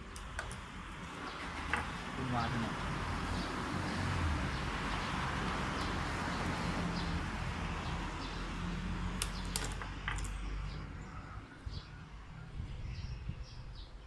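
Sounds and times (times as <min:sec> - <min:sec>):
sharp clicks of gearbox parts: 0:00.0 - 0:01.9, 0:09.2 - 0:10.5.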